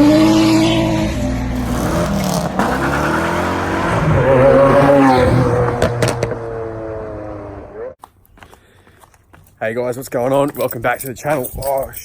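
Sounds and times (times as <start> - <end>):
car engine revving: 1.4 - 7.8.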